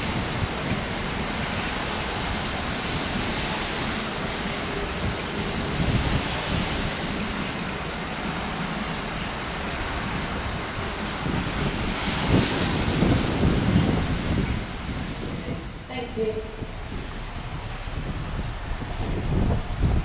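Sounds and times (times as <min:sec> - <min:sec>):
steady rain: 0:00.0 - 0:20.0
low uneven rumble: 0:12.7 - 0:20.0.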